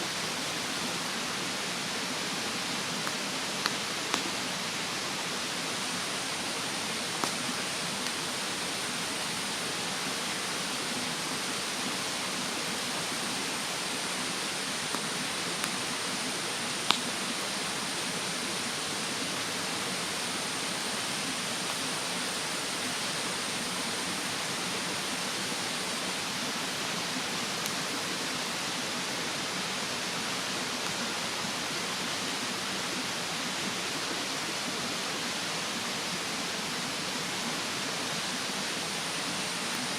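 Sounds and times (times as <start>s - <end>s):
mountain stream rushing: 0.0s - 39.9s
wood fire popping: 16.8s - 17.2s.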